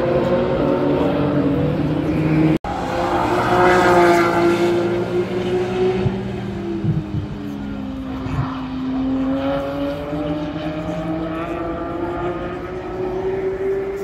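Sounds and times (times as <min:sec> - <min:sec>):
race car engine: 0:00.0 - 0:14.0.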